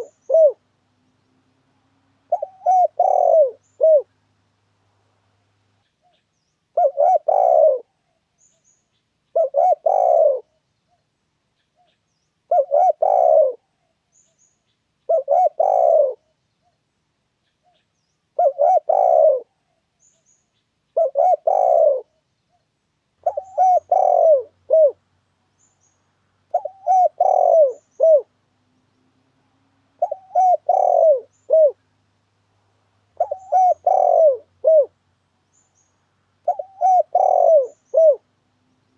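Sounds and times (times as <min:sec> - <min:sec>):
dove cooing: 0:00.0 - 0:00.7, 0:02.2 - 0:04.2, 0:06.7 - 0:08.0, 0:09.3 - 0:10.6, 0:12.5 - 0:13.9, 0:15.1 - 0:16.4, 0:18.3 - 0:19.8, 0:20.9 - 0:22.2, 0:23.2 - 0:25.1, 0:26.5 - 0:28.4, 0:29.9 - 0:31.9, 0:33.1 - 0:35.0, 0:36.4 - 0:38.4.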